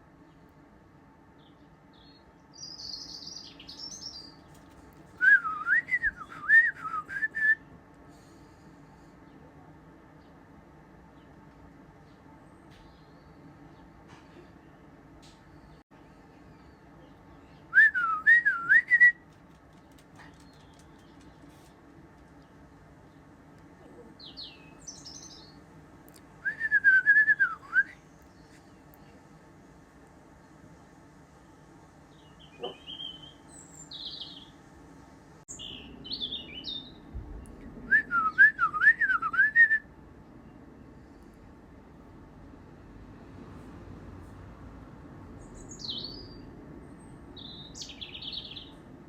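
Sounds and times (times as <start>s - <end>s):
small birds chirping: 1.4s - 5.0s, 19.4s - 26.3s, 32.1s - 34.6s, 35.5s - 37.8s, 45.4s - 48.9s.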